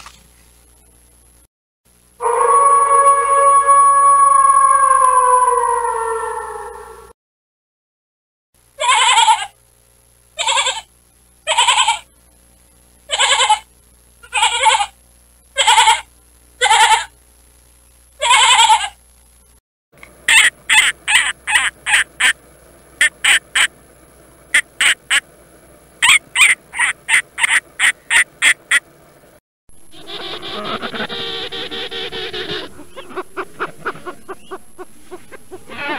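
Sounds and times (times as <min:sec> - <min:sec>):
goat bleating: 0:08.8 - 0:09.5, 0:10.4 - 0:10.8, 0:11.5 - 0:12.0, 0:13.1 - 0:13.6, 0:14.2 - 0:14.9, 0:15.6 - 0:17.1, 0:18.2 - 0:19.0, 0:35.7 - 0:35.9
eagle rapid high calls: 0:20.2 - 0:22.4, 0:23.0 - 0:23.7, 0:24.5 - 0:25.3, 0:26.0 - 0:28.9.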